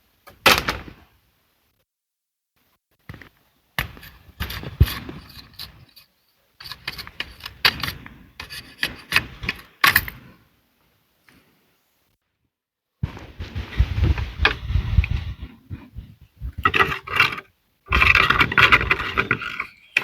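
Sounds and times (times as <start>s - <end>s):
wood scraping against wood: 3.8s - 9.7s, 13.3s - 20.0s.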